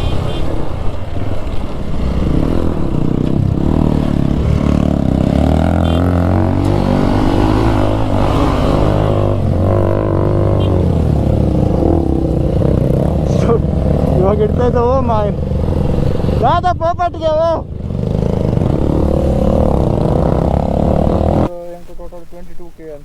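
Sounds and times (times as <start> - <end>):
motorcycle engine revving: 0.0 - 21.6.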